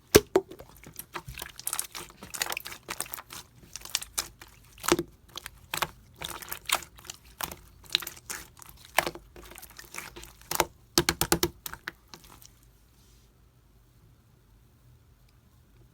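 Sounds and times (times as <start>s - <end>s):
slime clicking and popping: 0.1s - 12.4s.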